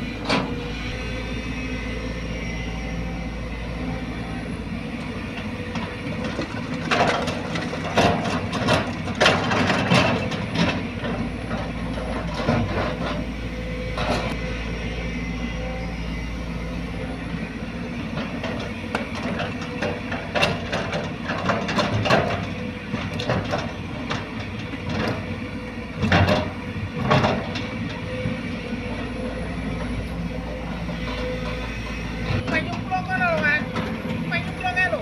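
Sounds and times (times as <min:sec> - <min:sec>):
excavator diesel engine running: 0:00.0 - 0:35.0
clanks and knocks: 0:18.2 - 0:25.2.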